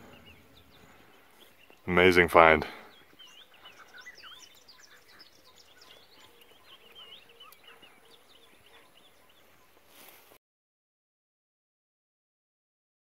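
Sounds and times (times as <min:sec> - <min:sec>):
small birds chirping and whistling: 0:00.0 - 0:10.3.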